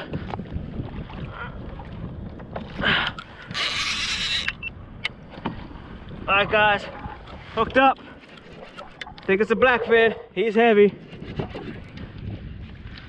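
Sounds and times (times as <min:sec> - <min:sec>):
water and hull noise: 0:00.0 - 0:13.0
fishing reel: 0:03.5 - 0:04.7
reel drag hissing line: 0:03.5 - 0:04.7.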